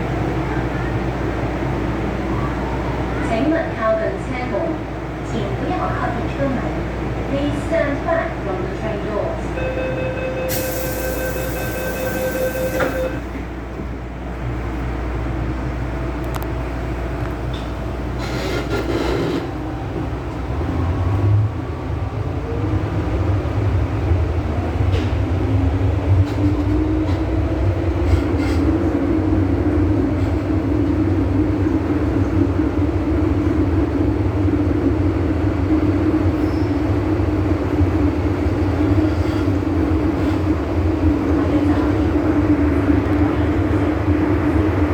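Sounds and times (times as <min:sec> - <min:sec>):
train rumble: 0:00.0 - 0:44.9
steady tone: 0:09.7 - 0:13.3
train motor whine: 0:10.5 - 0:13.4.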